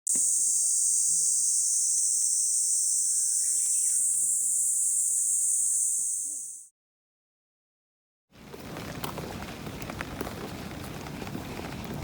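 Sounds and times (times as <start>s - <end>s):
insects shrilling: 0.1s - 6.7s.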